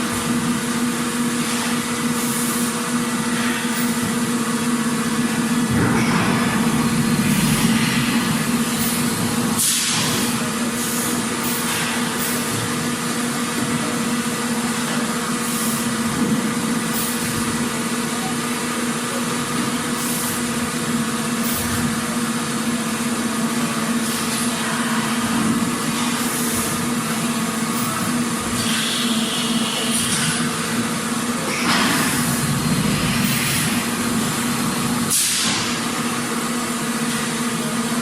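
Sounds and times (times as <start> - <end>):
factory machinery hum: 0.0 - 38.0
high machine whine: 2.9 - 12.5, 24.5 - 36.3.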